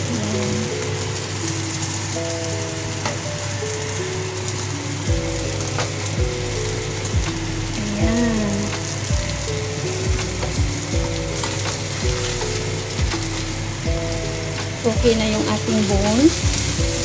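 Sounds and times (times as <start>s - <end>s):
background music with beat: 0.0s - 17.0s
fish sizzling in oil: 0.0s - 17.0s.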